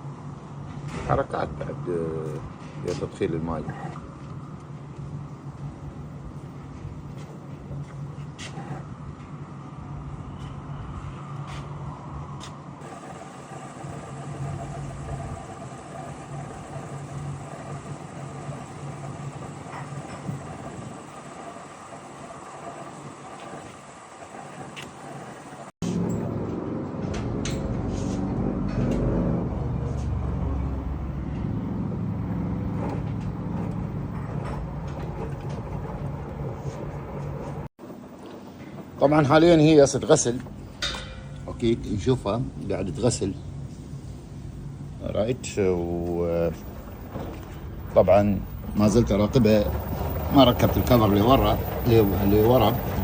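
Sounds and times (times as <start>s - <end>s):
water filling hiss: 12.8s - 25.7s
washing machine humming: 12.8s - 26.5s, 30.2s - 53.0s.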